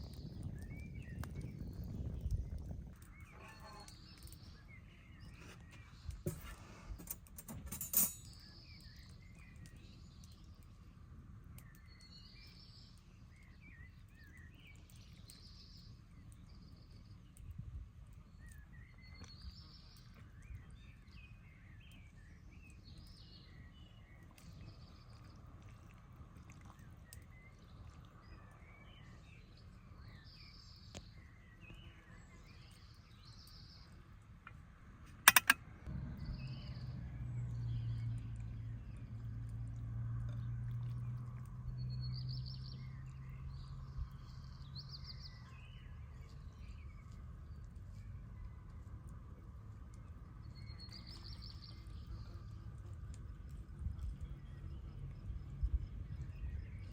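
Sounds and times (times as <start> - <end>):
steady low rumble: 34.8 - 41.6, 52.0 - 56.9
sharp clicks or knocks: 35.2 - 35.6.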